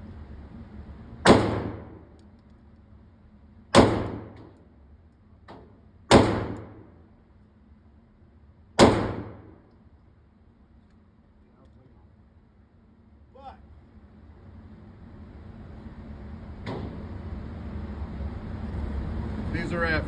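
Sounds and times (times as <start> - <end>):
pistol shots with echo: 1.2 - 2.1, 3.8 - 4.5, 6.1 - 6.9, 8.8 - 9.6.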